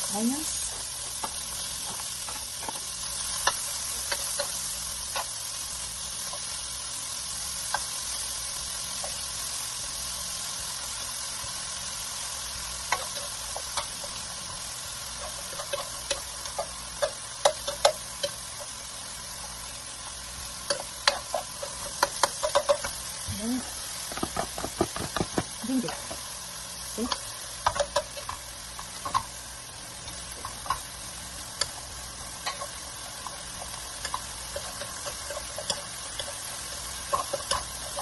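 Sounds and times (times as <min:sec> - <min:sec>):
onions sizzling in hot oil: 0:00.0 - 0:38.0
metal utensil scraping pan: 0:20.5 - 0:23.1, 0:31.6 - 0:38.0.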